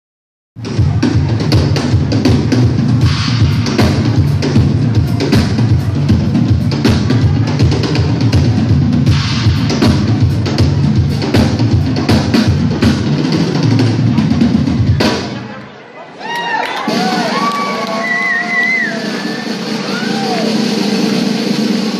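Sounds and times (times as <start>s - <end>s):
bass drum and snare: 0.6s - 15.5s
live rock band playing: 0.6s - 15.5s.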